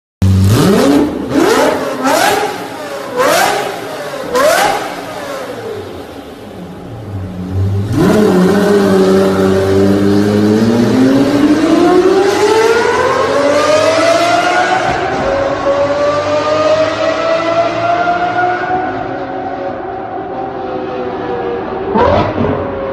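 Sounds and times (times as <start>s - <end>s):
sports car engine revving: 0.2s - 19.8s, 21.6s - 22.9s.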